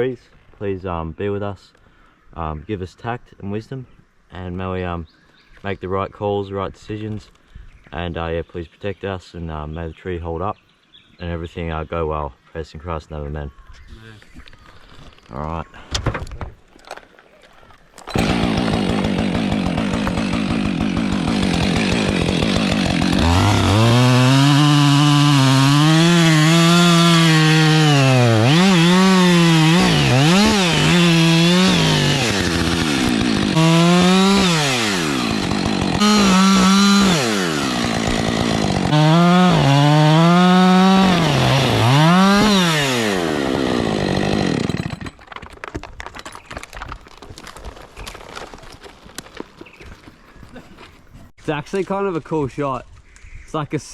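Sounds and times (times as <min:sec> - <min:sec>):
chainsaw revving: 0:18.1 - 0:45.2.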